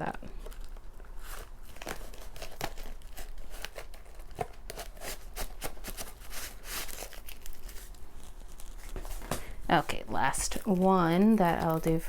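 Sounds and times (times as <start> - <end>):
paper and plastic packaging rustling: 0.3 - 12.0.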